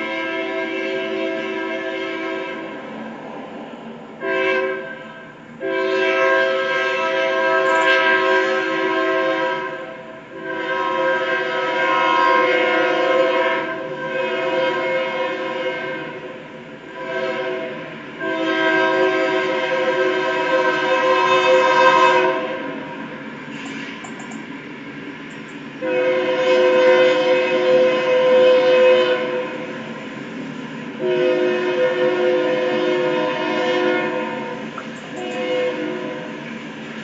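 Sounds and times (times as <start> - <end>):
locomotive air horn blasts: 0.0 - 2.9, 4.2 - 24.0, 25.8 - 29.9, 30.9 - 36.5.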